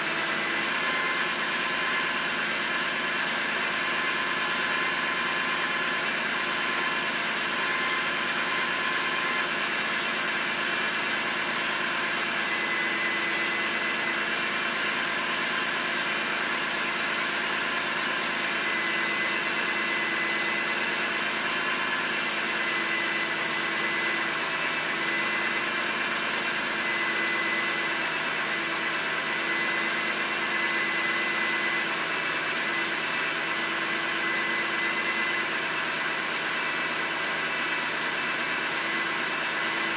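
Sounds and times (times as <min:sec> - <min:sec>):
car engine idling: 0:00.0 - 0:12.5.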